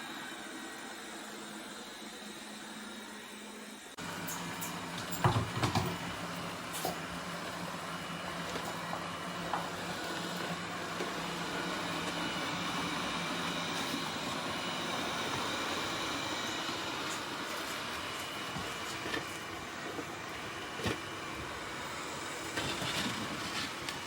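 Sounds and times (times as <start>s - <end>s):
robot vacuum motor and brushes: 5.0s - 24.0s.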